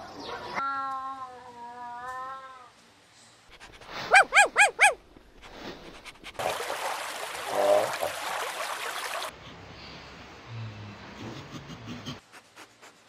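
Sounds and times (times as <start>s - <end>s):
water splashing and rippling: 3.6s - 9.4s
puppy yipping: 3.9s - 5.0s.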